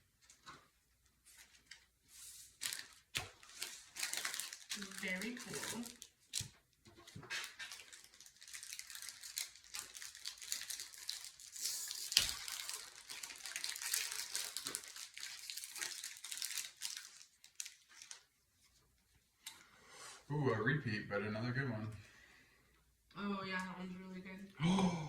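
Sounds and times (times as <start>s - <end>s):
foil wrapper crinkling and tearing: 2.3s - 6.6s, 7.2s - 18.3s.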